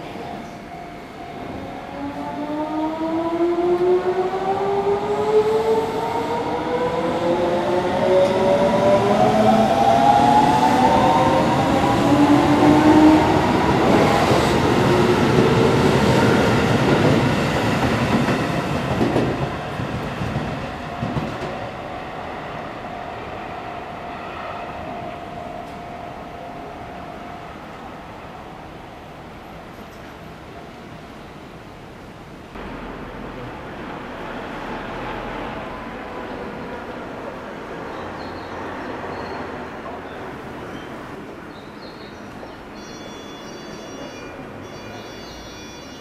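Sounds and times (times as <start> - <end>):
train wheels rumbling on rails: 2.0 - 22.8.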